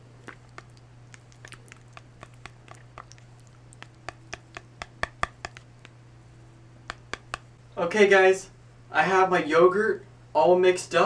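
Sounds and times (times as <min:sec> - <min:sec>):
spoon stirring yogurt clicking: 0:00.2 - 0:07.5.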